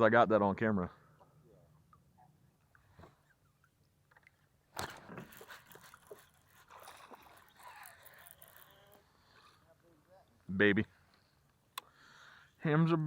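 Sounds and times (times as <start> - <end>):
water splashing: 3.2 - 9.6.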